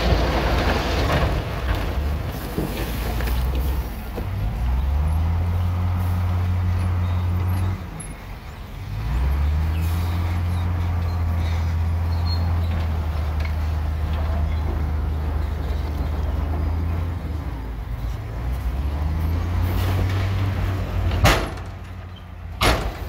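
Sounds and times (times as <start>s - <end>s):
heavy diesel engine droning: 0.0s - 23.0s.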